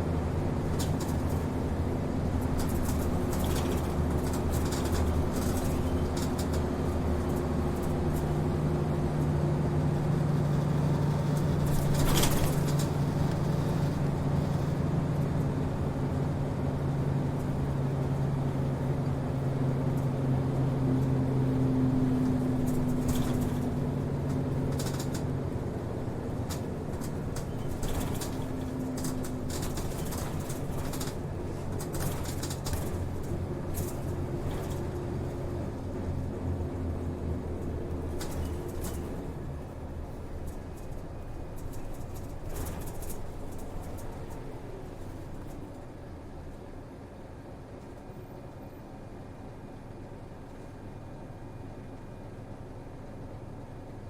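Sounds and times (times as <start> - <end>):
bus diesel engine droning: 0.0 - 54.0
road noise: 0.0 - 54.0
rattles and knocks: 22.6 - 23.8, 26.4 - 34.9.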